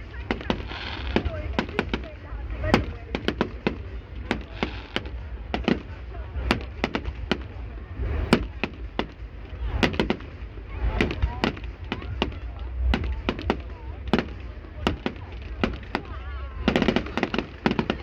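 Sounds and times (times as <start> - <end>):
fireworks bangs and cracks: 0.0 - 18.0
low rumble: 0.0 - 18.0.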